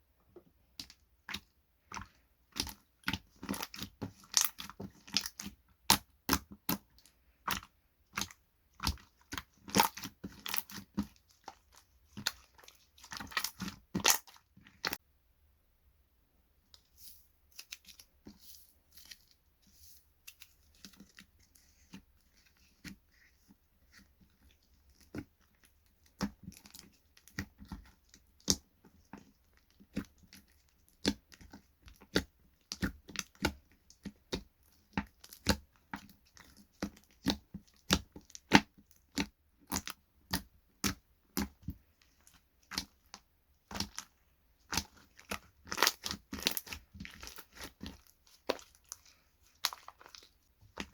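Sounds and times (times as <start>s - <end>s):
slime clicking and popping: 44.7s - 49.0s.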